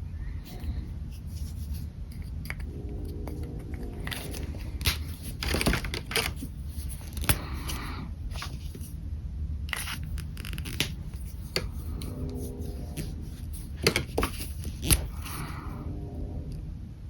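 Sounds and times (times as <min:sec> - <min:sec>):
steady low hum: 0:00.0 - 0:17.0
pen scratching on paper: 0:00.5 - 0:07.9, 0:09.8 - 0:15.7.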